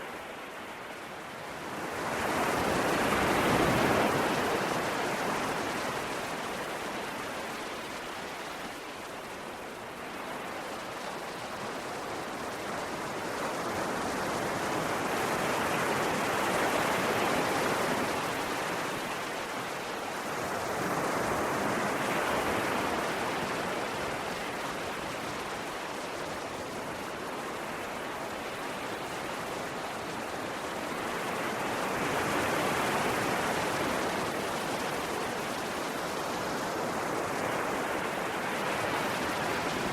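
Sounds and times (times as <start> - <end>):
ocean waves washing on shore: 0.0 - 39.9.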